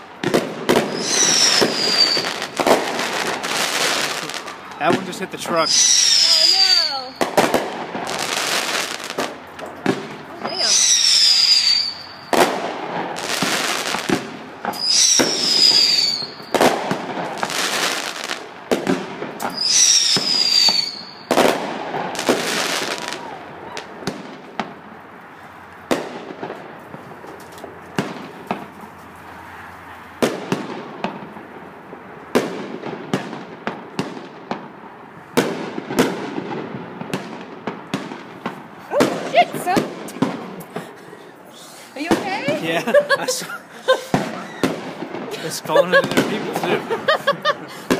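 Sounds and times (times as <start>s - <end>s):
crackling firework pops: 0.0s - 5.2s, 6.2s - 24.8s, 25.9s - 28.9s, 35.4s - 40.9s
firework shell bursts: 0.4s - 4.4s, 10.0s - 18.1s
falling firework whistle: 0.7s - 4.5s, 5.5s - 7.4s, 10.4s - 12.6s, 14.7s - 17.0s, 19.4s - 24.0s, 43.9s - 45.3s.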